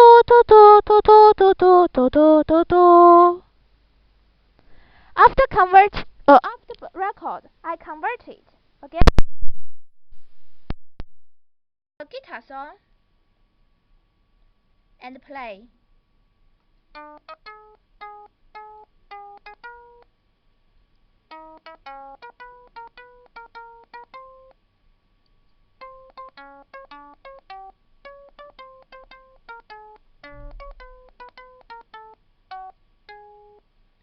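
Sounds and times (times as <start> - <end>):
synthetic plucked guitar notes: 17.0 - 20.1, 21.3 - 24.6, 25.8 - 33.6.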